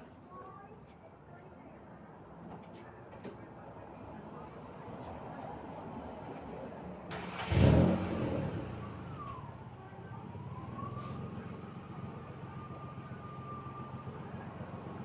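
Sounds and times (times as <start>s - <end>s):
car engine idling: 10.1s - 15.0s.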